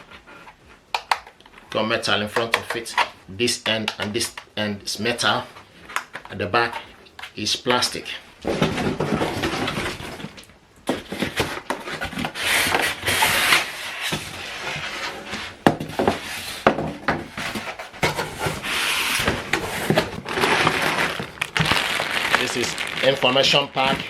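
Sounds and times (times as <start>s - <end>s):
cardboard rubbing and scraping: 8.4s - 24.0s.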